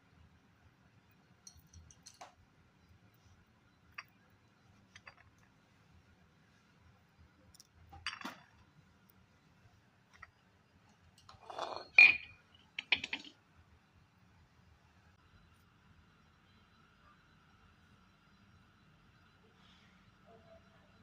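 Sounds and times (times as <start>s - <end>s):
metal tools clinking: 11.2s - 13.3s
ringing metal clink: 11.5s - 13.2s.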